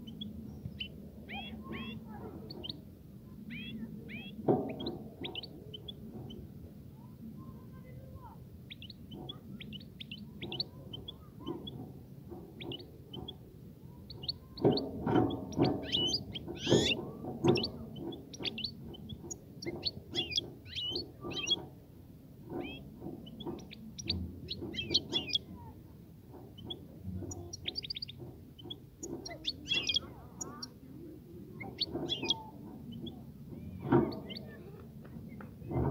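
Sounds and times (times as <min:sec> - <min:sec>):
goldfinch twittering song: 0:00.0 - 0:02.8, 0:03.5 - 0:06.4, 0:14.1 - 0:21.7, 0:22.5 - 0:25.5, 0:26.6 - 0:30.8, 0:31.6 - 0:33.2.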